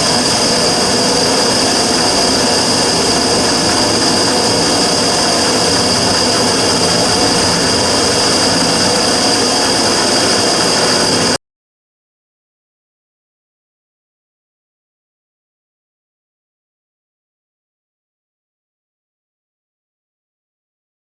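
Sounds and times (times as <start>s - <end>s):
burner rushing noise: 0.0s - 11.4s
high-pitched hiss: 0.0s - 11.4s.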